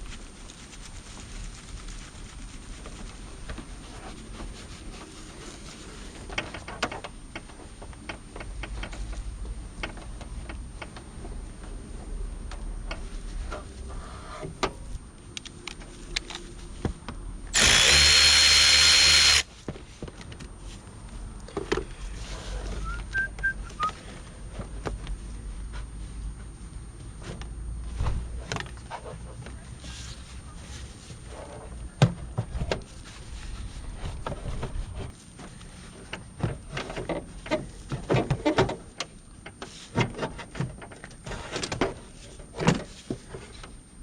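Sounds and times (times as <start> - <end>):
power tool running: 17.5 - 19.5.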